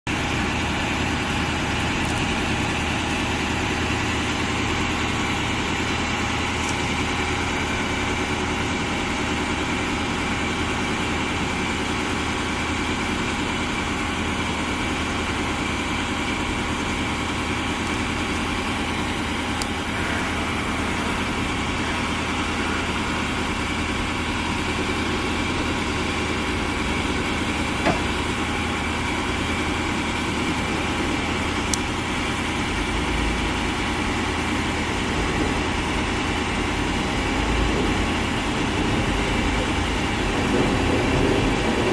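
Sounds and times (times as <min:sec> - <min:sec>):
diesel engine idling: 0:00.1 - 0:41.9.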